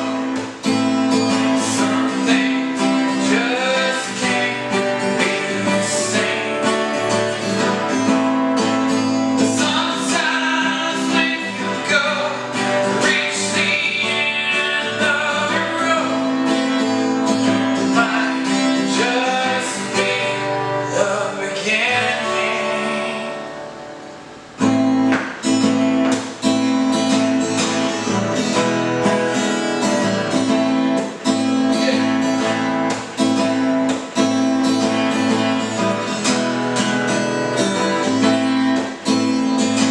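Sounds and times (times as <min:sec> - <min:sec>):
acoustic guitar strumming: 0:00.0 - 0:39.9
person singing: 0:01.4 - 0:06.8, 0:09.4 - 0:16.4, 0:17.8 - 0:23.6, 0:31.6 - 0:32.5.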